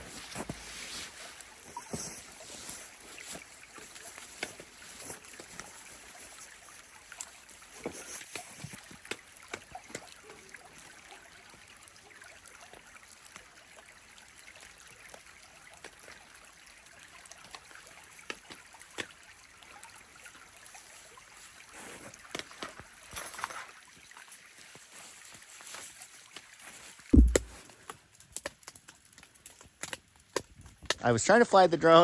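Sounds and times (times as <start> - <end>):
stream running: 0.0 - 30.7
sharp ticks and taps: 27.2 - 27.6.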